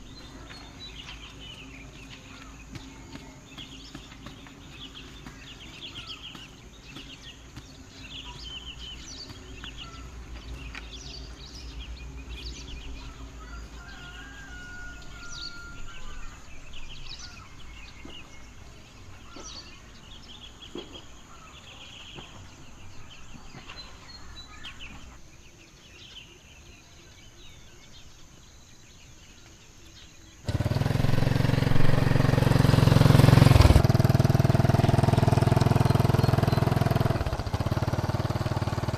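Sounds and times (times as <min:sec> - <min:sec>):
birds chirping: 0:00.0 - 0:38.9
small engine running: 0:30.4 - 0:38.9.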